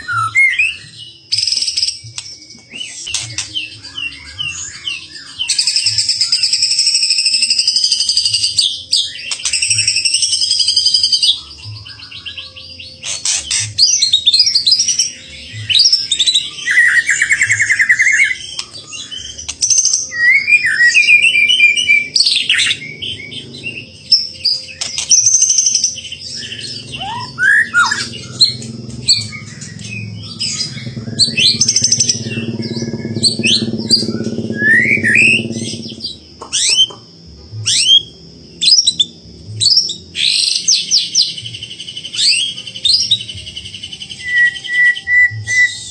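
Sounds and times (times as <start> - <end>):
songbird singing trills: 0.0 - 45.9
low steady hum: 21.3 - 40.3.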